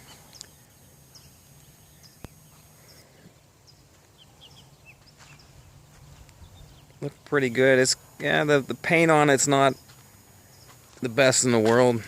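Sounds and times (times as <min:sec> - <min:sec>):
bird chirps: 0:00.0 - 0:07.1.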